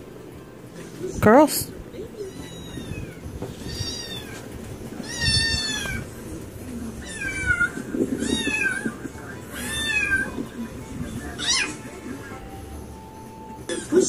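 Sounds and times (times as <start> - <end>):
cat meowing: 2.0 - 10.6, 11.3 - 11.9.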